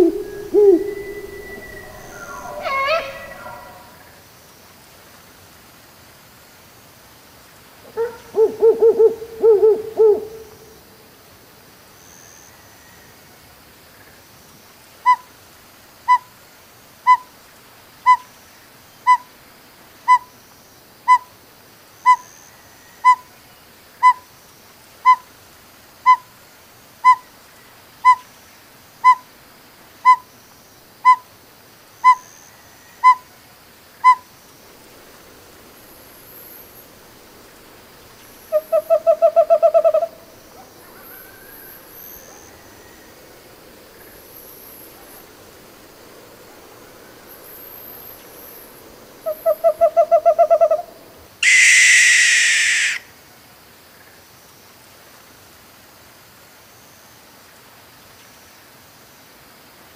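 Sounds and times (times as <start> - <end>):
fast owl trill: 0.0 - 4.1, 47.5 - 53.1
owl hooting: 0.0 - 4.2, 7.9 - 10.7, 33.0 - 33.2, 34.0 - 53.1.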